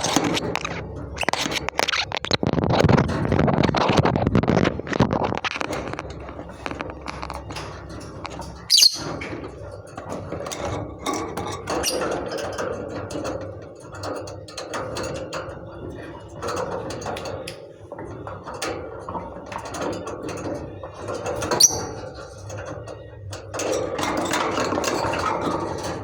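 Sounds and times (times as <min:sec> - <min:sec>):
lovebirds chattering: 0:08.6 - 0:09.2, 0:21.5 - 0:22.0
sharp high bird chirp: 0:08.7 - 0:09.0, 0:21.6 - 0:21.9.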